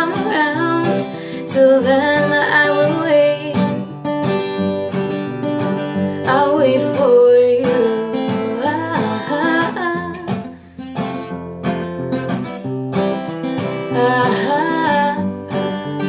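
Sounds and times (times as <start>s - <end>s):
person singing: 0.0s - 4.0s, 6.2s - 10.5s, 13.9s - 15.8s
acoustic guitar: 0.0s - 16.0s.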